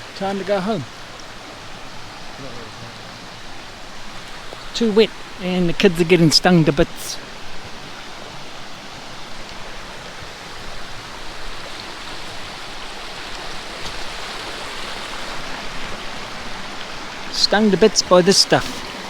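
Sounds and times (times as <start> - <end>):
rushing water: 0.0 - 19.0.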